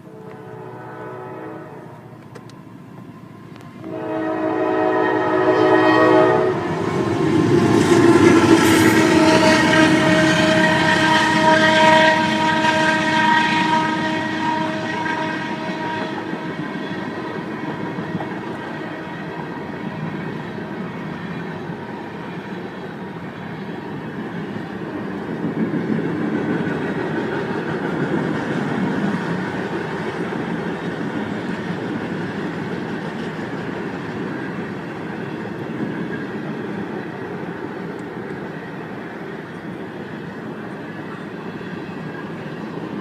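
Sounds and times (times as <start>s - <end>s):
train horn blasting: 0.0s - 2.2s, 3.8s - 7.1s, 7.9s - 19.8s
train rumbling and clattering: 0.0s - 43.0s.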